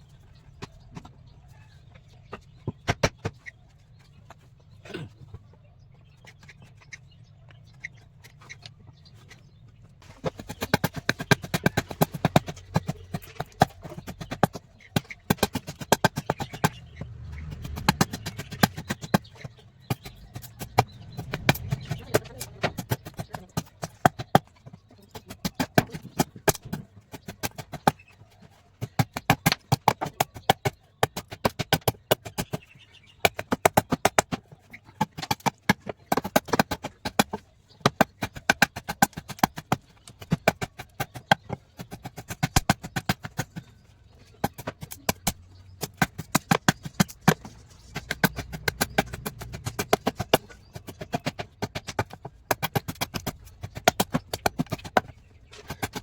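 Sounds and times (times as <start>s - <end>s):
sharp wooden knocks: 10.2s - 24.6s, 28.8s - 56.0s.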